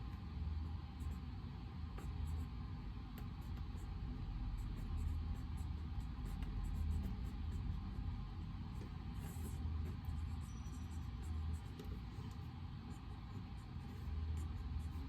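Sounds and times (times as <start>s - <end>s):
pen scratching while writing: 4.6s - 15.0s.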